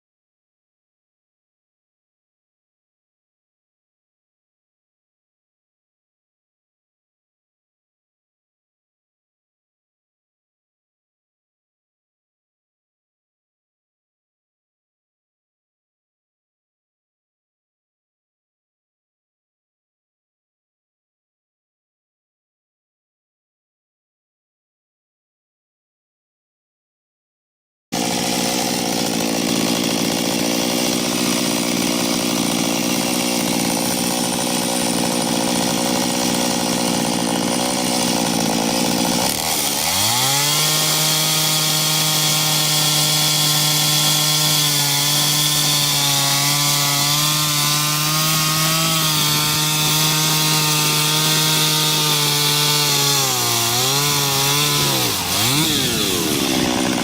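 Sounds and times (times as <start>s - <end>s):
chainsaw cutting into tree: 28.0s - 57.0s.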